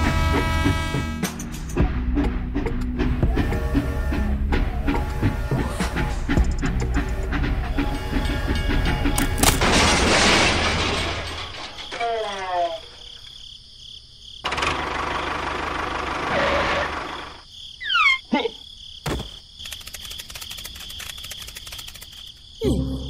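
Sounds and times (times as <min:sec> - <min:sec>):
loud toy crash: 0:09.2 - 0:12.3
squeaky falling cries: 0:17.8 - 0:18.3.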